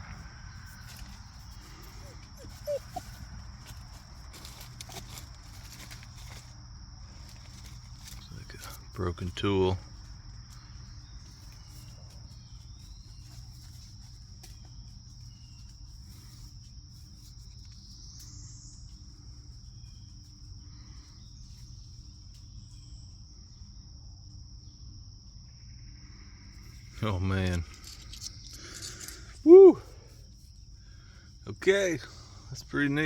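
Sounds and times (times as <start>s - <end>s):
crickets droning: 0.0s - 33.0s
faint bird chirps: 0.9s - 3.4s, 10.6s - 23.7s.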